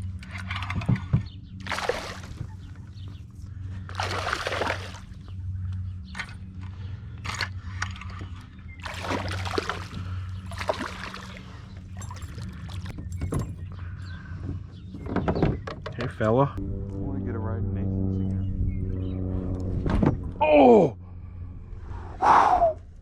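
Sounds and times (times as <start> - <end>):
steady low hum: 0.0 - 15.5, 16.1 - 23.0
water sloshing and splashing: 0.2 - 5.3, 7.3 - 13.6.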